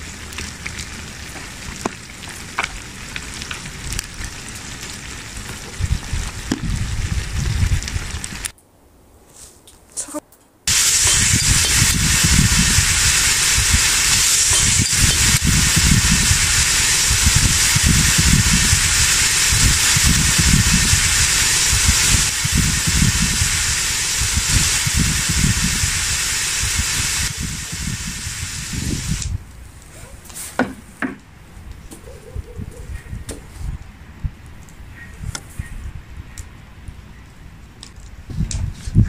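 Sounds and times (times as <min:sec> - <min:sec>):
oil and meat sizzling: 0:00.0 - 0:08.5, 0:10.7 - 0:29.4.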